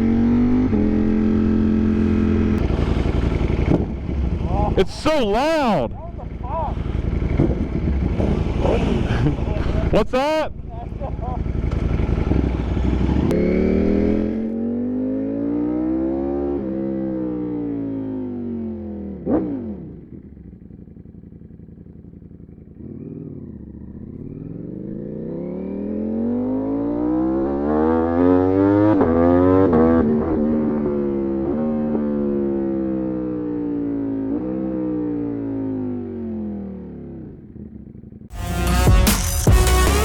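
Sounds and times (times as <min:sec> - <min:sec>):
vehicle passing: 0:00.0 - 0:16.0
motorcycle engine revving: 0:00.0 - 0:40.0.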